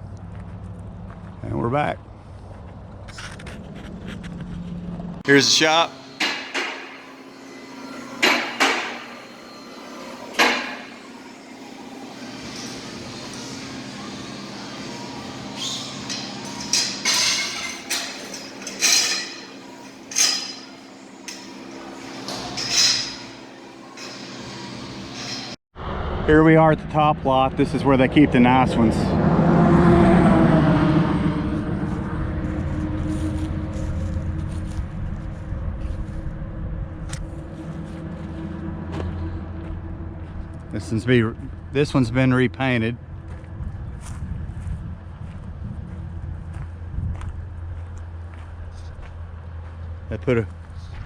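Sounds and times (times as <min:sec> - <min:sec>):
steady low hum: 0:02.0 - 0:51.0
sharp metallic clanks: 0:05.2 - 0:25.6
vehicle engine running: 0:28.4 - 0:51.0.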